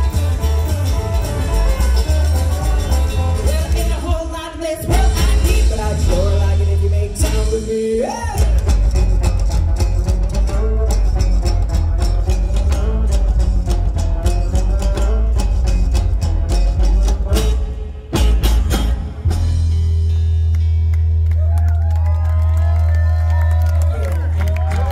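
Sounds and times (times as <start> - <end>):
live rockabilly band playing: 0.0 - 24.9
person singing: 2.5 - 8.8.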